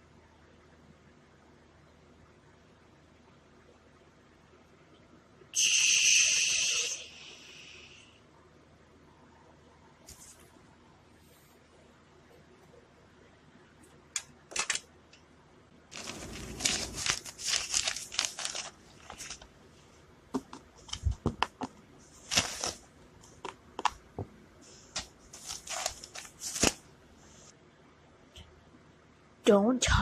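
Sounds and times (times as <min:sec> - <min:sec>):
rustling and crinkling: 0:15.9 - 0:27.5.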